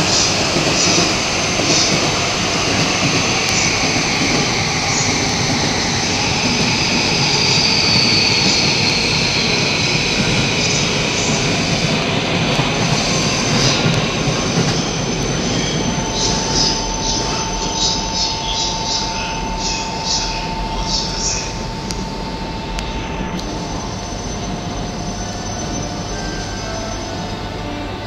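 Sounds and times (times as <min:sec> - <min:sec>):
train wheels rumbling on rail: 0:00.0 - 0:28.0
high falling whine: 0:01.2 - 0:28.0
steady mid-pitched tone: 0:15.7 - 0:28.0.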